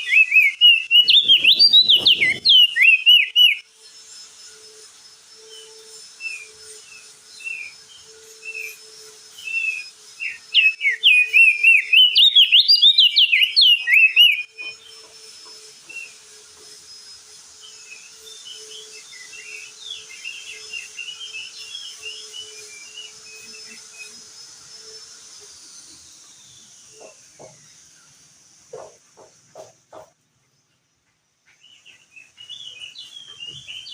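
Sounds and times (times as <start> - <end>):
bird chirping and warbling: 0.0 - 4.0, 5.4 - 16.2, 31.5 - 33.9.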